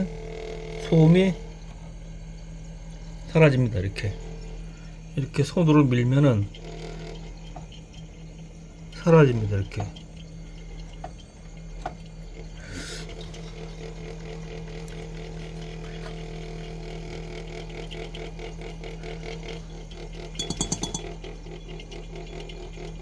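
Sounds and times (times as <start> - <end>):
refrigerator hum: 0.0 - 23.0
refrigerator condenser rattling: 20.3 - 21.2
louder clatter: 20.4 - 21.1.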